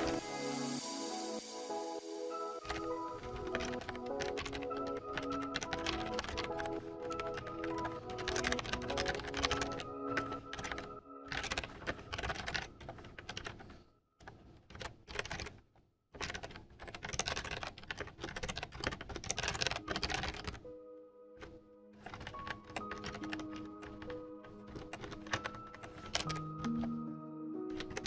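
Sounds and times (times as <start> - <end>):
soft background music: 0.0 - 12.8, 19.3 - 28.0
rapid keyboard typing: 2.3 - 15.6, 16.2 - 20.7, 21.4 - 27.0, 27.7 - 28.0.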